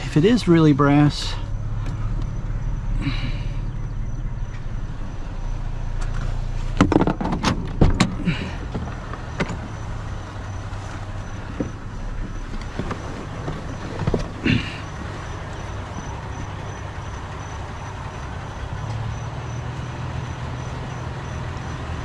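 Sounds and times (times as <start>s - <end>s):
truck engine idling: 0.0s - 22.0s
sharp knocks and clatter: 6.0s - 9.8s, 11.4s - 14.4s.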